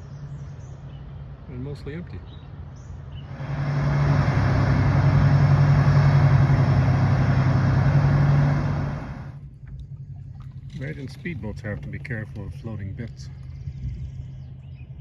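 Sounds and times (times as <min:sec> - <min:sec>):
boat diesel engines droning: 0:02.9 - 0:13.4.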